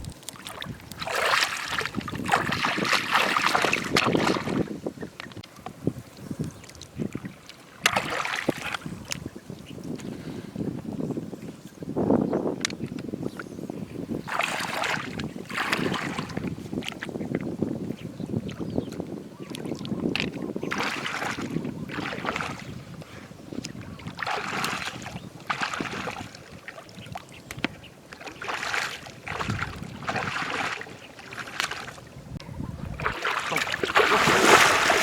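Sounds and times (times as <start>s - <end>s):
floodwater sloshing and splashing: 0.0s - 4.8s, 6.0s - 10.0s, 14.2s - 17.2s, 18.5s - 35.0s
low steady water rush: 0.0s - 10.0s, 21.0s - 35.0s.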